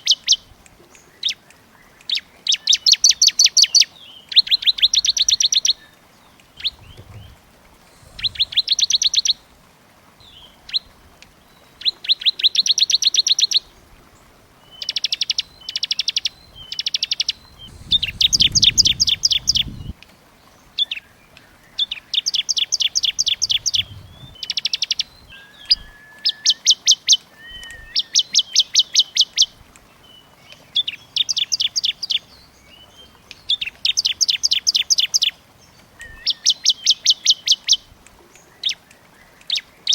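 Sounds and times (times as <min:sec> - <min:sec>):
songbirds trilling: 0:02.8 - 0:09.5, 0:14.7 - 0:20.0, 0:21.8 - 0:37.8.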